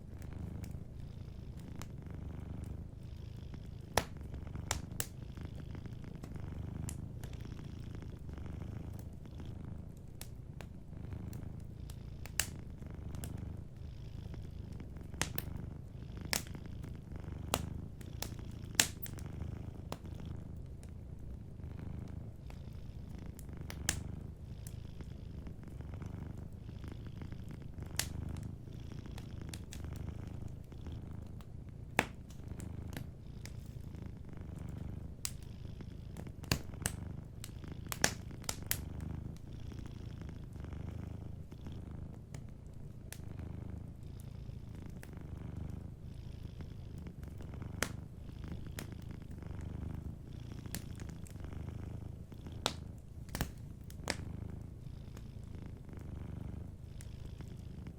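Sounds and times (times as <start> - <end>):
wood fire crackling: 0.0 - 46.1, 46.7 - 56.8
cat purring: 0.0 - 57.9.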